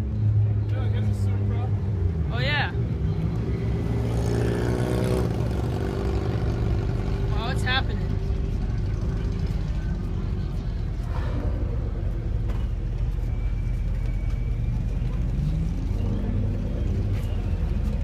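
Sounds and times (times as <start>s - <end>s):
faint voices: 5.2s - 18.0s.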